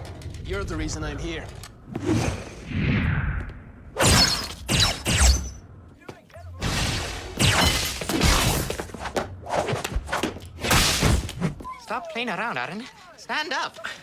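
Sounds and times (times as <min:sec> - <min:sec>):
sharp hits and crashes: 0:06.6 - 0:11.5.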